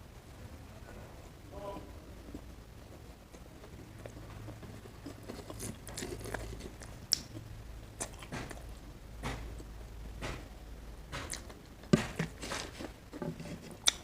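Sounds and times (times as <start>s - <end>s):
person chewing: 3.3s - 8.7s, 11.2s - 14.0s.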